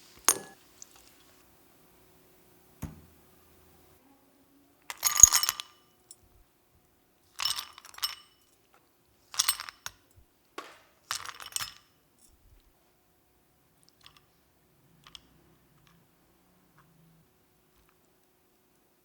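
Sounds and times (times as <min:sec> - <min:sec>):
glass clinking: 0:00.3 - 0:00.6.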